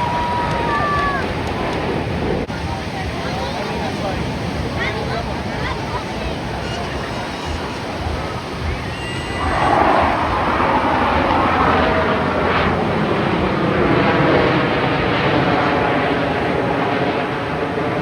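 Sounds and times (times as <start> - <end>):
aircraft engine roar: 0.0 - 18.0.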